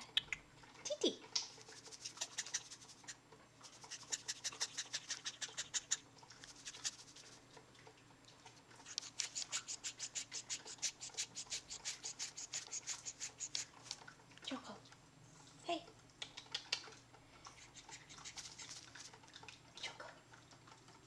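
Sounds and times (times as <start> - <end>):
cockatiel raspy scratching sound: 1.5 - 7.4, 8.8 - 14.0, 17.6 - 19.2.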